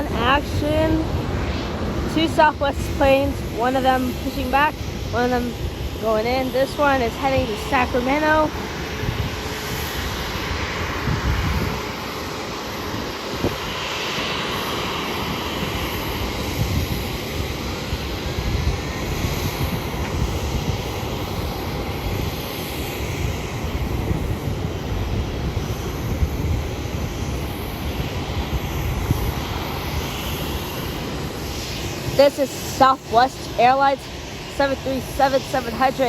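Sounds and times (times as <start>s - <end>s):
jet engines running: 0.0s - 36.0s.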